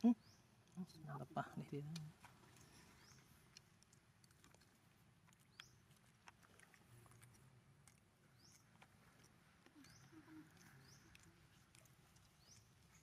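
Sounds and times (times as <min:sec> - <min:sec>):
bird chirping: 0:00.0 - 0:00.9, 0:02.5 - 0:03.5, 0:05.4 - 0:06.0, 0:08.2 - 0:13.0
faint outdoor ambience: 0:00.0 - 0:13.0.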